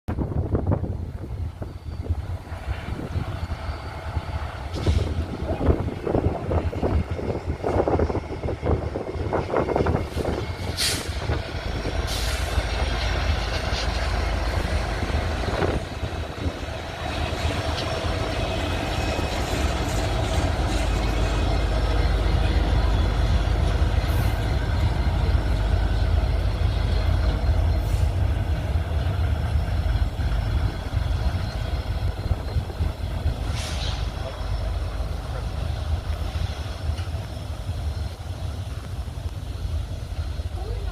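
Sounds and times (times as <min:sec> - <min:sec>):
diesel locomotives rumbling past: 0:00.1 - 0:40.9
brief hiss: 0:10.6 - 0:11.3, 0:33.4 - 0:34.2.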